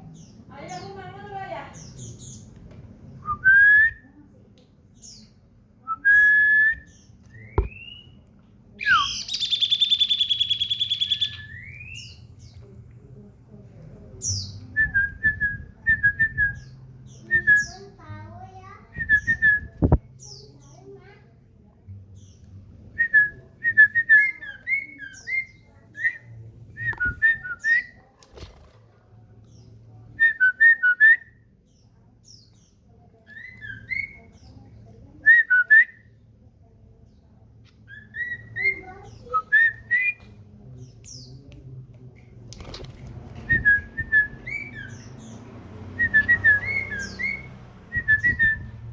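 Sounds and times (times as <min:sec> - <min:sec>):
bird singing whistled notes and trill: 0:05.9 - 0:08.2, 0:08.8 - 0:12.6, 0:14.2 - 0:18.0, 0:18.6 - 0:20.8, 0:22.1 - 0:28.0, 0:30.2 - 0:34.6, 0:35.2 - 0:36.2, 0:37.8 - 0:40.4, 0:43.4 - 0:48.9.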